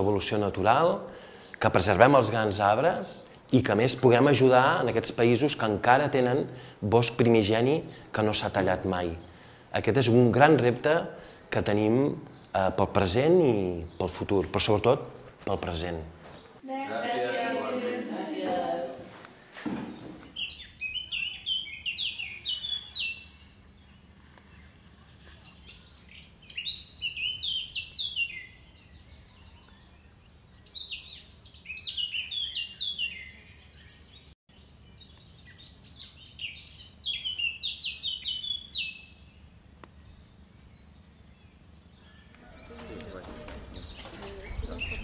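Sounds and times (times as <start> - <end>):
songbird chirping: 19.7 - 45.0.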